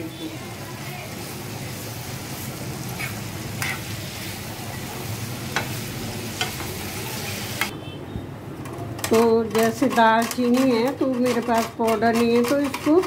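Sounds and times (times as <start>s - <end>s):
apples sizzling in a frying pan: 0.0s - 7.7s.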